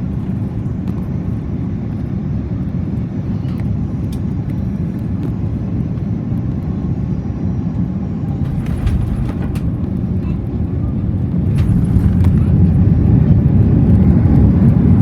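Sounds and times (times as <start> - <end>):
airliner cabin rumble: 0.0 - 15.0
faint rattles: 8.4 - 12.7.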